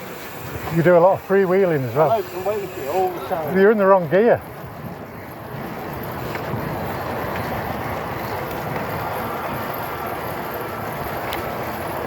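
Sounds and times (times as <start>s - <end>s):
wind and tyre noise: 0.0s - 12.0s
faint clicks: 11.2s - 11.5s.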